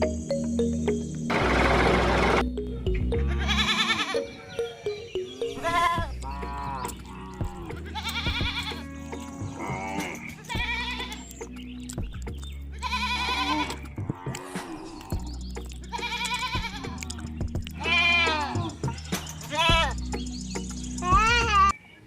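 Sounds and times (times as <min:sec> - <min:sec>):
background music low notes: 0:00.0 - 0:21.7
animal bleating: 0:03.2 - 0:04.4, 0:05.5 - 0:11.4, 0:12.7 - 0:20.0.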